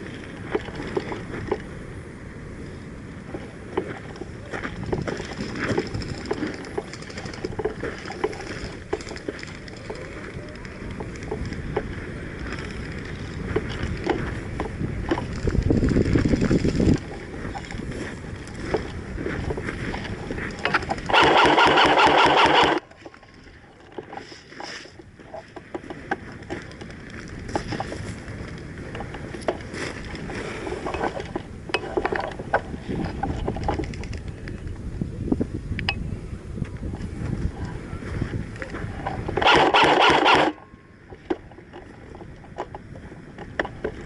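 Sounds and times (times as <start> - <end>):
rustles and clicks: 0.0 - 35.1, 36.5 - 44.0
wind buffeting microphone: 0.0 - 44.0
airsoft gun full-auto burst: 21.1 - 22.8, 39.4 - 40.6.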